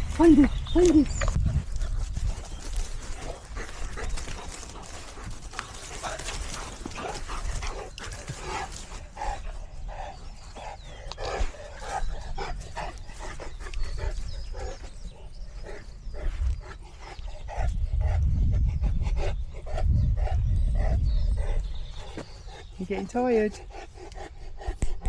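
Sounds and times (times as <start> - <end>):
dog panting: 0.0 - 25.0.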